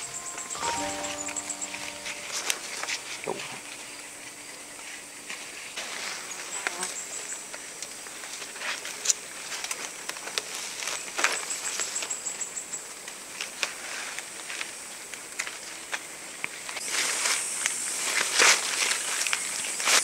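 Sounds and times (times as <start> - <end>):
high insect trill: 0.0 - 7.5.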